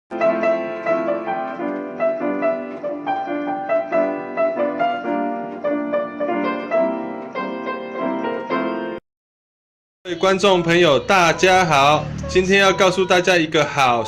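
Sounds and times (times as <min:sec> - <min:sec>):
piano melody over chords: 0:00.1 - 0:09.0.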